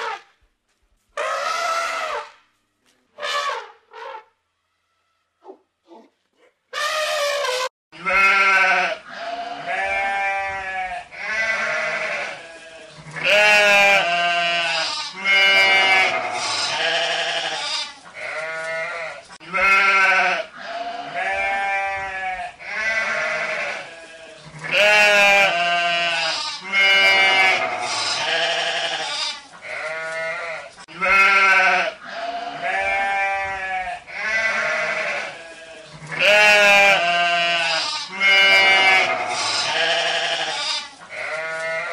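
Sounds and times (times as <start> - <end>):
sheep bleating: 6.8 - 41.9.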